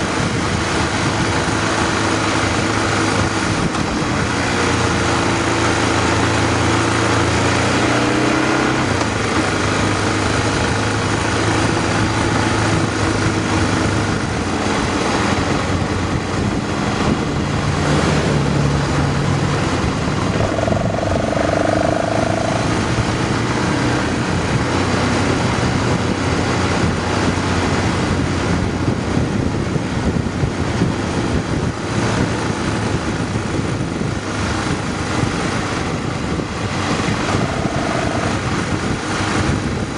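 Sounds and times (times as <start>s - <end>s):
motorcycle engine running: 0.0s - 39.9s
wind rush over microphone: 0.0s - 39.9s
steady higher tone: 19.9s - 23.5s, 36.7s - 38.8s.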